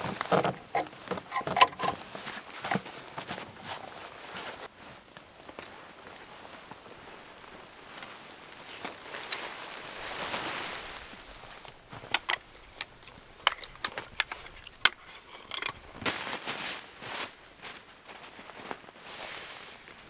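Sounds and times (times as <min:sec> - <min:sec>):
sharp clicks and knocks: 0:00.3 - 0:02.0, 0:11.6 - 0:16.1.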